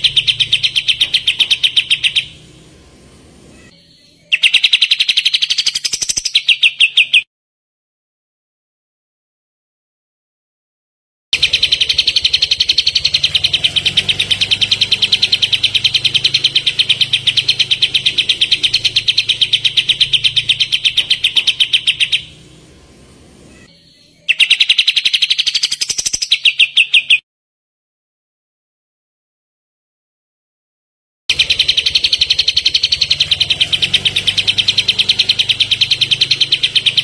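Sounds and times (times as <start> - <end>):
songbird rapid sharp notes: 0.0 - 7.3, 11.4 - 27.2, 31.3 - 37.0.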